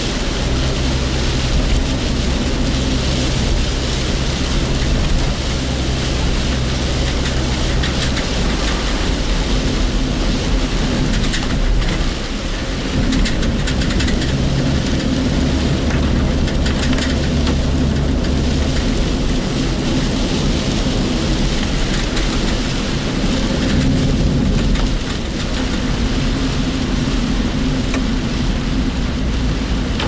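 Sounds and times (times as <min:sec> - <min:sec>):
car engine hum: 0:00.0 - 0:30.0
heavy rain hiss: 0:00.0 - 0:30.0
road noise: 0:00.0 - 0:30.0
raindrop taps: 0:03.4 - 0:27.2.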